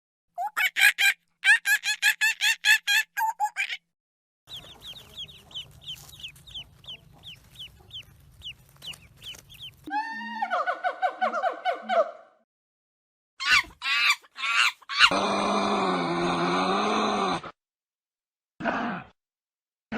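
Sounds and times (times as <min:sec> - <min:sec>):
chick peeping: 0:04.5 - 0:09.9
chicken clucking: 0:04.5 - 0:09.9.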